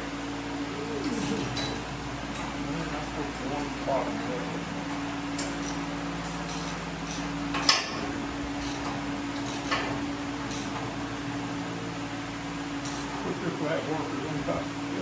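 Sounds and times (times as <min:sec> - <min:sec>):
steady mechanical hum: 0:00.0 - 0:15.0
clicks and clinks of parts: 0:08.6 - 0:09.9.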